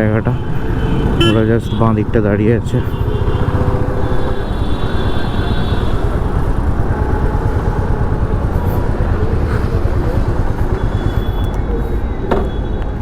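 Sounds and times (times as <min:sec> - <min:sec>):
motorcycle engine running: 0:00.4 - 0:11.6.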